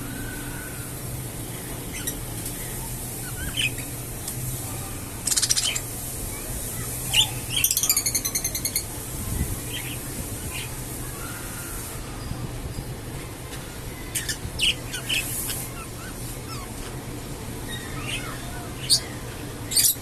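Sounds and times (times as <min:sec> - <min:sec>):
budgerigars chirping: 0:05.3 - 0:05.8.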